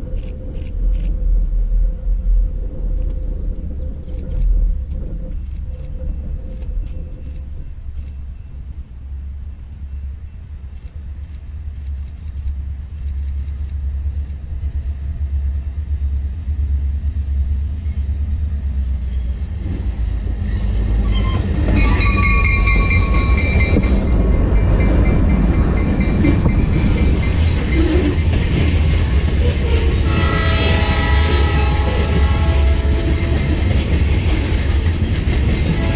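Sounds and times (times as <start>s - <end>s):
freight train rumbling: 0.0s - 35.9s
high ringing tones: 21.1s - 28.0s.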